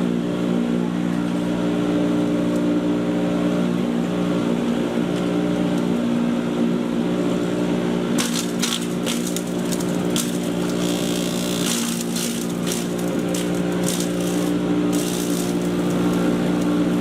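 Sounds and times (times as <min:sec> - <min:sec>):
chipper shredder motor humming: 0:00.0 - 0:17.0
crackling and snapping in cutters: 0:08.2 - 0:17.0.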